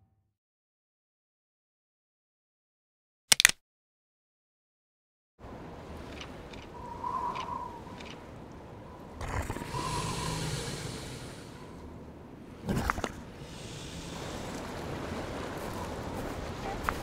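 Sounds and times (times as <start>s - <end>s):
steady wind-like hiss: 5.4s - 17.0s.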